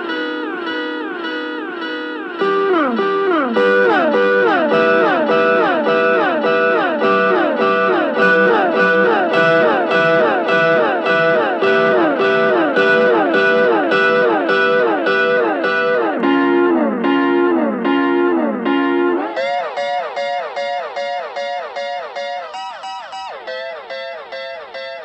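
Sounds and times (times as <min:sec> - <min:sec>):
electric guitar with delay echoes: 0:00.0 - 0:25.0.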